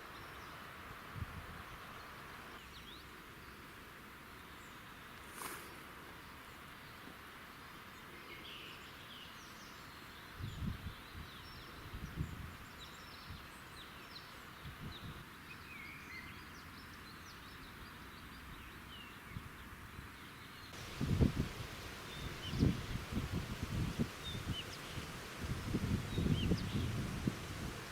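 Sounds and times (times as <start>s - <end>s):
faint steady hiss: 0.0s - 27.9s
small birds chirping: 20.2s - 27.9s.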